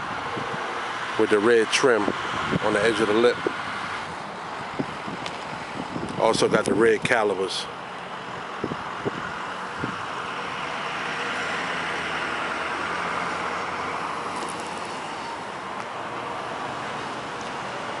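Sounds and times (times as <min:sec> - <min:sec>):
vehicle passing: 0:07.7 - 0:18.0.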